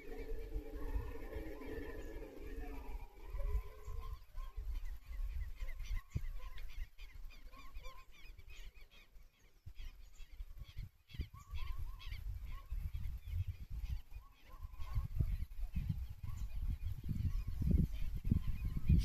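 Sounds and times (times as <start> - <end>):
low rumble: 0.0 - 4.4
birds honking chirps: 0.0 - 9.2.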